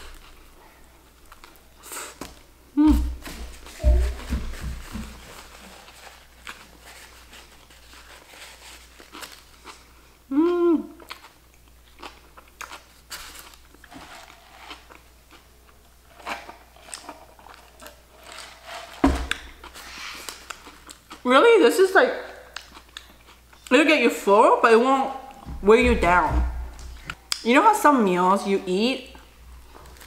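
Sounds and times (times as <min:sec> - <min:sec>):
person humming mm: 0:02.8 - 0:03.2, 0:10.3 - 0:11.0
thump: 0:03.8 - 0:05.2, 0:19.0 - 0:19.4
person chewing sandwich: 0:05.4 - 0:21.2, 0:22.5 - 0:23.7.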